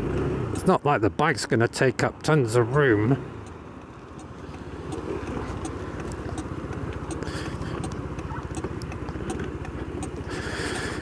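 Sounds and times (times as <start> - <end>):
motorcycle engine idling: 3.4 - 11.0.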